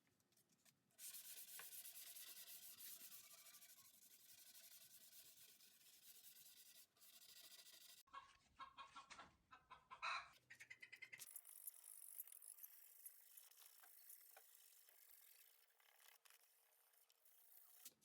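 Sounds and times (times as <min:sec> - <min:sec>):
chickens clucking: 0:08.1 - 0:11.2.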